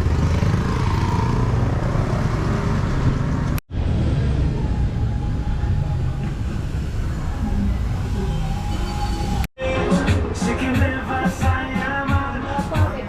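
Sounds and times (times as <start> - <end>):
road vehicle rumble: 0.0 - 9.5.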